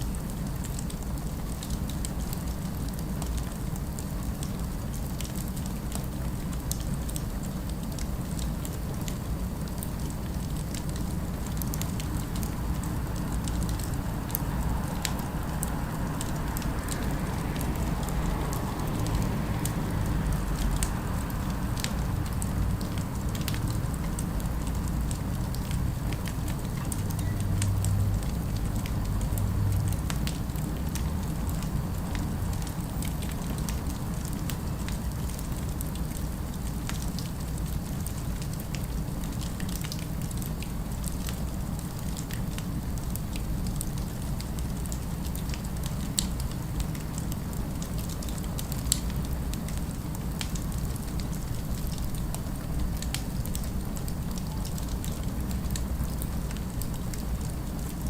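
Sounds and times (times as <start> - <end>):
wood fire crackling: 0.1 - 58.0
distant city ambience: 9.6 - 35.8.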